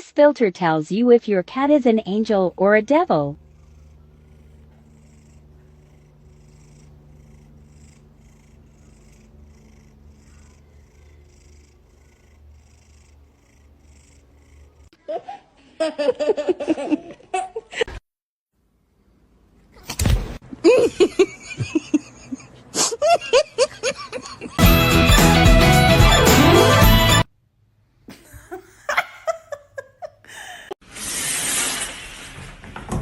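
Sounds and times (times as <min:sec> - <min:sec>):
cat purring: 0:01.2 - 0:14.9.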